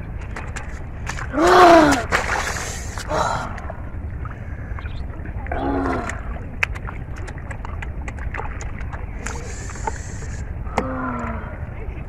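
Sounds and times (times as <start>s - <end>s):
steady low rumble: 0.0s - 12.0s
hands splashing in shallow water: 0.2s - 3.7s, 5.6s - 10.3s.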